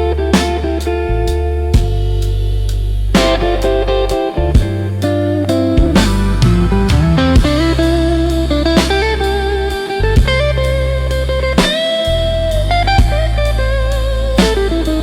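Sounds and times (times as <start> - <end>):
bass notes: 0.0 - 15.0
drums: 0.0 - 15.0
electric guitar bent lead notes: 0.0 - 15.0.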